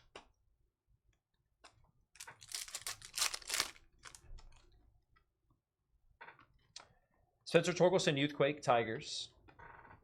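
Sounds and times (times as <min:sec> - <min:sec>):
foil wrapper rustling and crinkling: 0:02.2 - 0:04.6.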